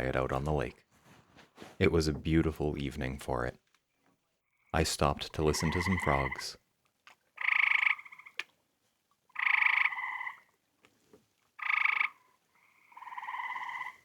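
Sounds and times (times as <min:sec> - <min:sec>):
frogs trilling: 0:05.4 - 0:06.6, 0:07.4 - 0:08.4, 0:09.3 - 0:10.5, 0:11.6 - 0:14.0.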